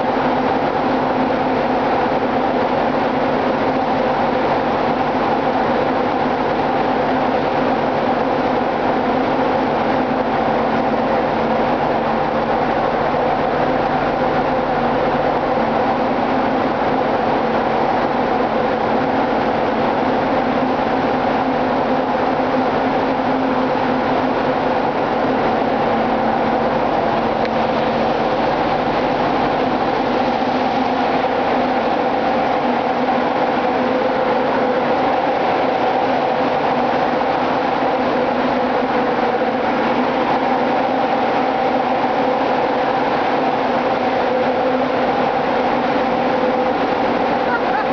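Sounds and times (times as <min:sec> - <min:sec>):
engine room machinery din: 0:00.0 - 0:47.9.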